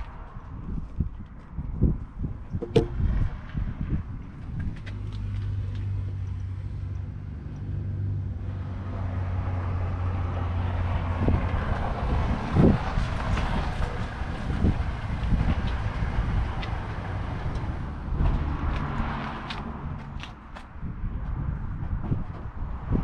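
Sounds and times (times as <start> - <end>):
knock: 2.6 - 3.0.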